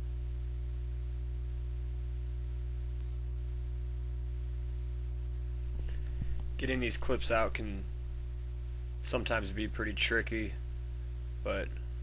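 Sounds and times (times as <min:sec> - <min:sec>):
low electrical hum: 0:00.0 - 0:12.0
faint click: 0:03.0 - 0:03.2.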